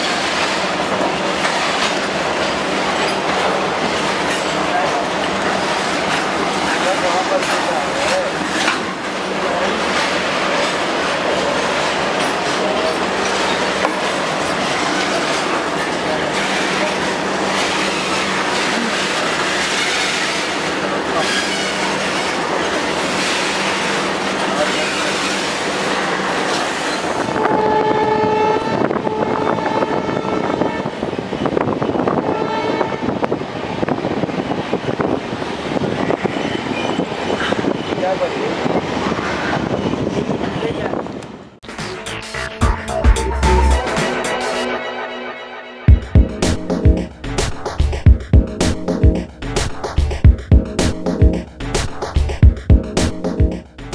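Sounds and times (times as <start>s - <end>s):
steel wheels on rails: 0.0s - 42.2s, 46.1s - 53.9s
locomotive horn blasts: 27.2s - 31.0s, 32.2s - 33.3s, 41.6s - 46.2s.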